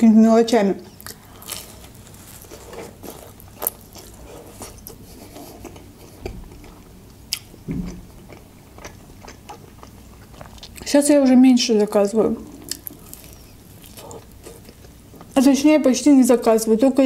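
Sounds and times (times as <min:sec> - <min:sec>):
crunching of crisp pie: 0:00.9 - 0:05.9, 0:12.5 - 0:15.5
chewing mouth sounds: 0:00.9 - 0:10.9, 0:12.4 - 0:15.4.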